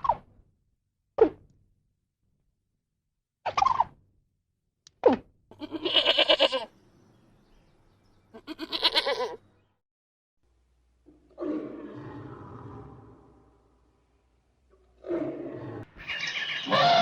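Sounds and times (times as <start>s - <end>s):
animal calling: 5.5s - 6.7s, 8.3s - 9.4s, 15.3s - 17.0s.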